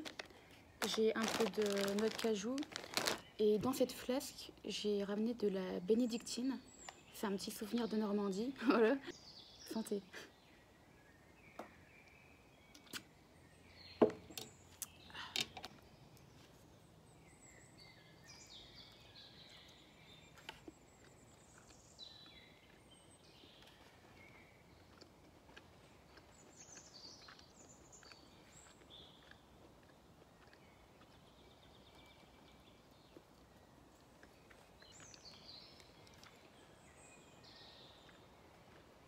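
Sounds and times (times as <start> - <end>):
songbirds singing: 0.0 - 39.0.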